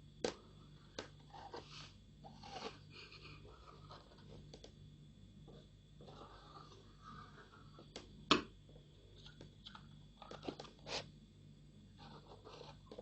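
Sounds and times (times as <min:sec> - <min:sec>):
marker rubbing on plastic: 0:10.4 - 0:11.1, 0:12.0 - 0:13.0.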